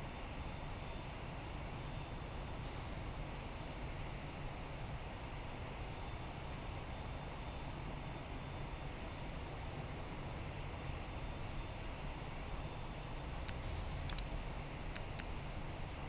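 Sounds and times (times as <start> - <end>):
jet engines rumbling: 11.1 - 16.0.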